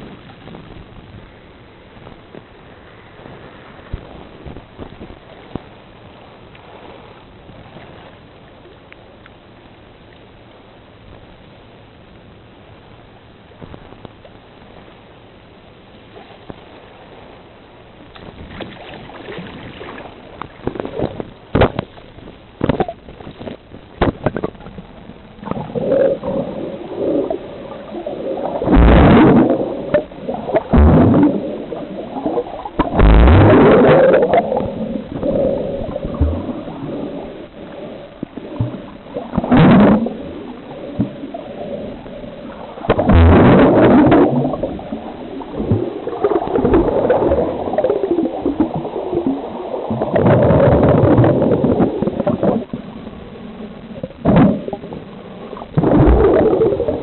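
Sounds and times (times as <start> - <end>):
muffled water surges: 0.0 - 57.0
seawater gurgling and sloshing: 16.0 - 57.0.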